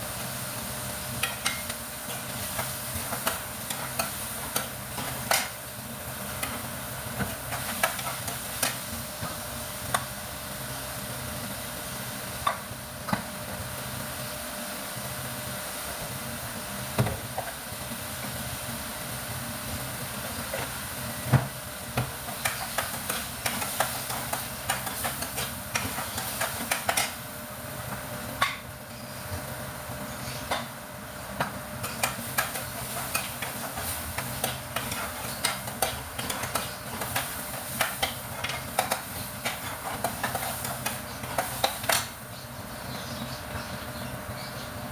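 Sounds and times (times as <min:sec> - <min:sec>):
food sizzling in a frying pan: 0:00.0 - 0:28.8, 0:29.5 - 0:42.3
utensil scraping and tapping pan: 0:31.4 - 0:42.1.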